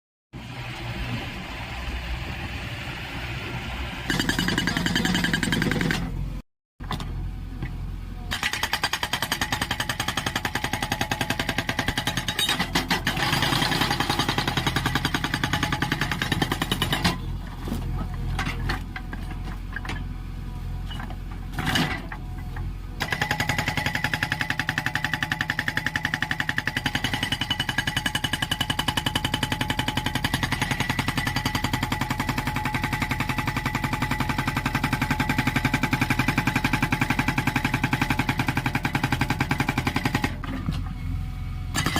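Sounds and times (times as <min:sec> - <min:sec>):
diesel engine running: 0:00.4 - 0:08.3, 0:28.7 - 0:41.9.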